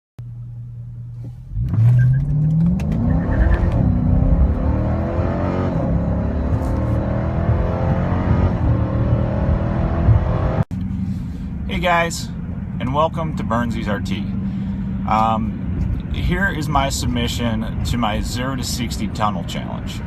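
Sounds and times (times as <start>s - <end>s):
car engine accelerating: 1.1s - 11.7s.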